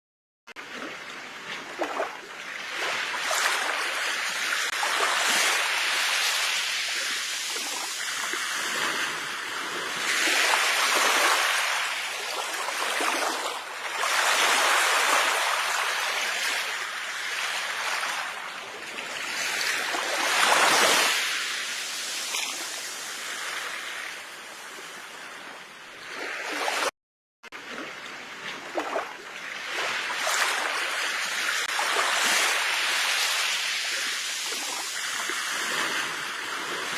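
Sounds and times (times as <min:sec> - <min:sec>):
sea waves breaking on shore: 0:00.5 - 0:36.9.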